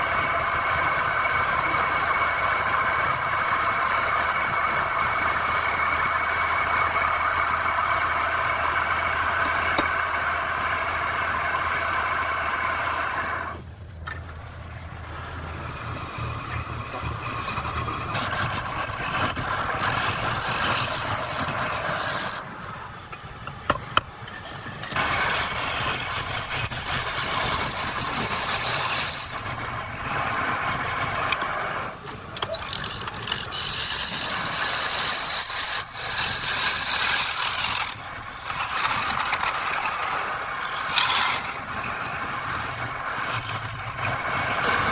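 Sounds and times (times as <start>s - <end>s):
wood lathe motor hum: 14.7s - 22.4s, 25.0s - 31.6s, 32.6s - 44.9s
turning tool scraping wood: 16.9s - 22.4s, 25.0s - 29.8s, 32.4s - 44.9s.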